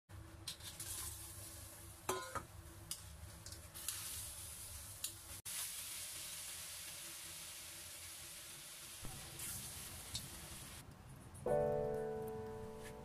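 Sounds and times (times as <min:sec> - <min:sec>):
chicken wings sizzling in oil: 0:00.5 - 0:10.8.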